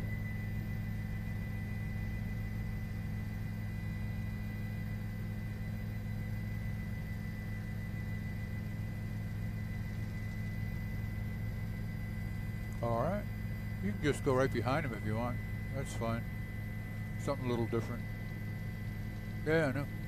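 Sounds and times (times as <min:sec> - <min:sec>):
helicopter cabin drone: 0:00.0 - 0:20.0
thin high whine: 0:00.0 - 0:20.0.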